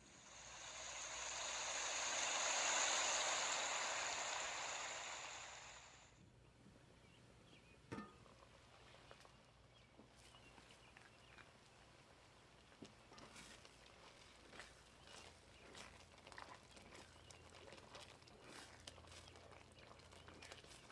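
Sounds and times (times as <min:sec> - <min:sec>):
water pouring: 0:00.0 - 0:06.0.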